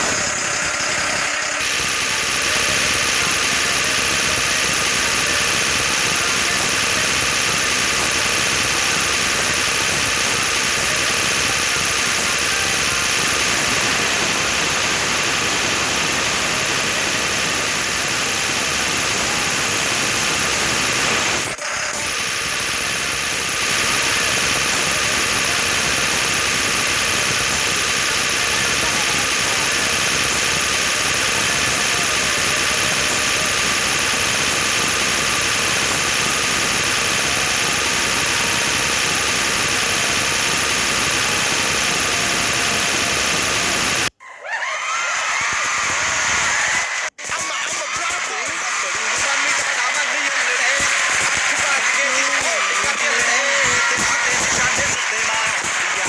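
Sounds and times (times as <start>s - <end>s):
tractor diesel engine running: 0.0s - 44.1s.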